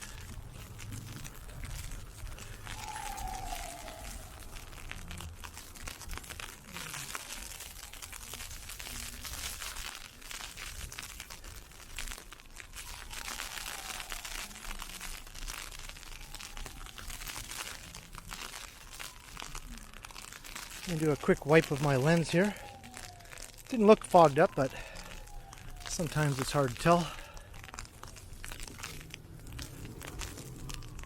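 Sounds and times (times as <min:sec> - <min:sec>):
footsteps in icy snow: 0:00.0 - 0:31.0
ice pellets crackling: 0:00.0 - 0:31.0.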